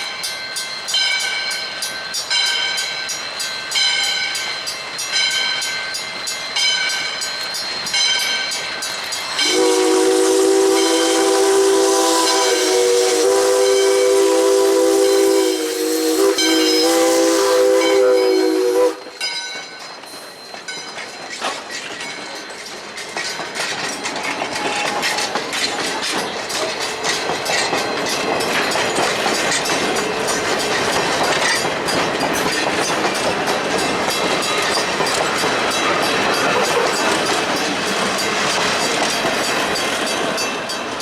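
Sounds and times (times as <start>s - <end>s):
train passing: 0.0s - 41.0s
steam locomotive whistle: 9.4s - 19.2s
wheels clicking over rail joints: 19.2s - 41.0s.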